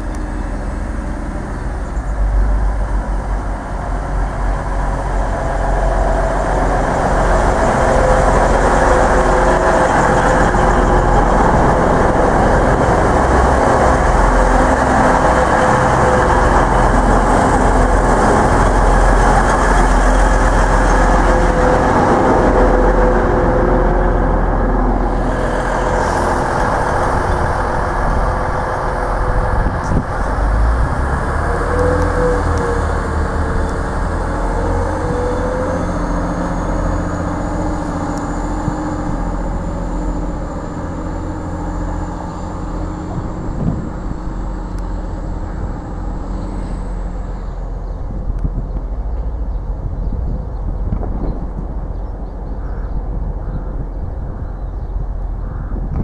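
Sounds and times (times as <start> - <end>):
train diesel engines running: 0.0 - 55.9.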